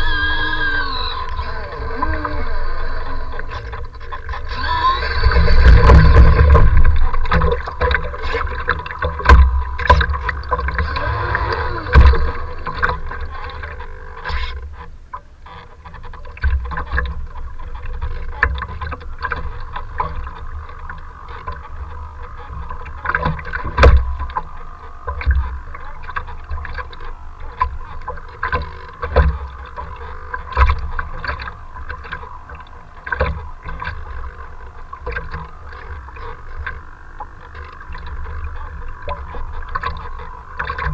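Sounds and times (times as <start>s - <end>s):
wind buffeting microphone: 0.0s - 13.9s
choppy water: 0.0s - 40.9s.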